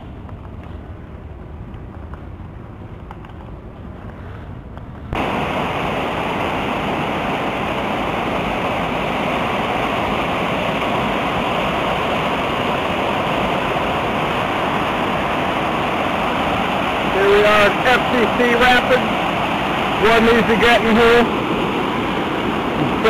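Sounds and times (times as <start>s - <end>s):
creek water rushing over rapids: 5.2s - 23.0s.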